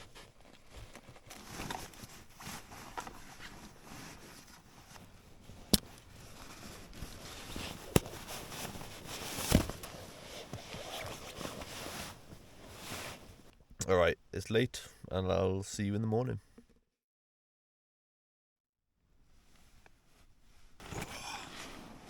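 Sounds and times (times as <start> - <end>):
sleeping bag rustling: 0.0 - 13.5, 19.3 - 22.0.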